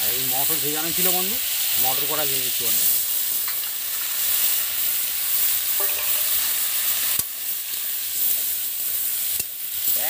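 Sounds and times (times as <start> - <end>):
vegetables sizzling in oil: 0.0 - 10.0
metal spatula scraping pan: 5.8 - 6.4.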